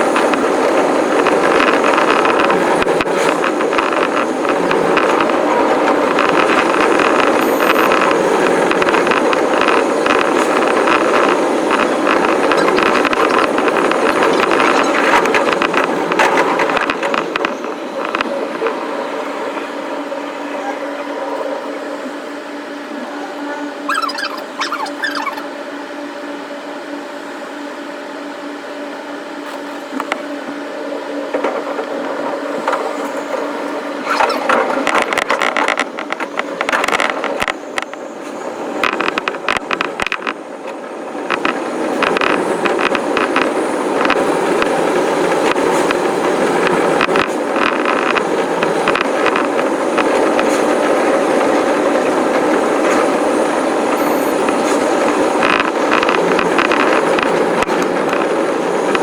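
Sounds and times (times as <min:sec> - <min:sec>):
wheels clicking over rail joints: 0:00.0 - 0:18.8, 0:31.1 - 0:59.0
electric train hum: 0:00.0 - 0:59.0
train rolling noise: 0:00.0 - 0:59.0.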